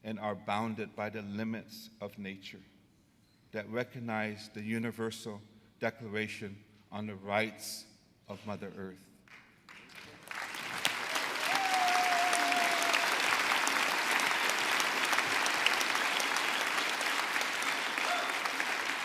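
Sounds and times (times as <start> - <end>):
audience applauding: 9.7 - 19.0
person cheering: 11.1 - 13.5, 18.0 - 18.7.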